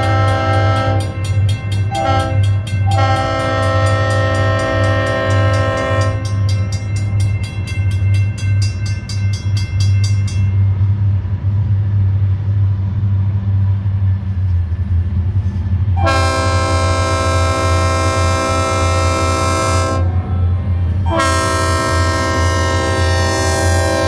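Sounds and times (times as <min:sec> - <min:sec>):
locomotive air horn chord: 0:00.0 - 0:06.7, 0:16.0 - 0:20.3, 0:21.0 - 0:24.0
diesel locomotive rumble: 0:00.0 - 0:24.0
quick regular ringing bell: 0:00.8 - 0:10.6.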